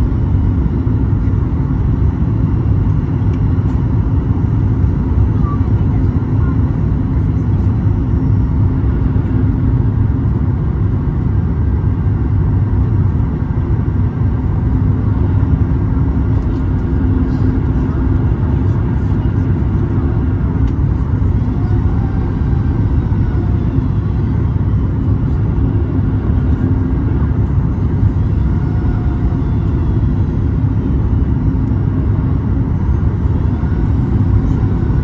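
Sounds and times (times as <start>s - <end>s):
airplane cabin engine rumble: 0.0s - 35.0s
steady engine tones: 0.0s - 35.0s.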